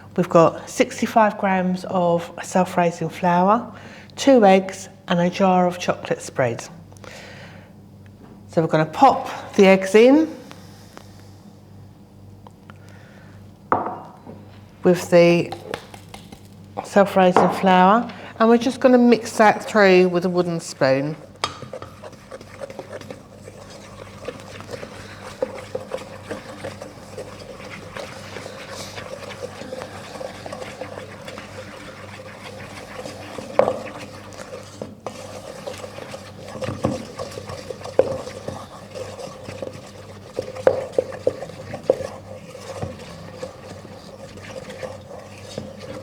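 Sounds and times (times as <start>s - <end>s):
spoon knocking against bowl: 13.7s - 14.1s
spoon scraping mixing bowl: 13.7s - 46.0s.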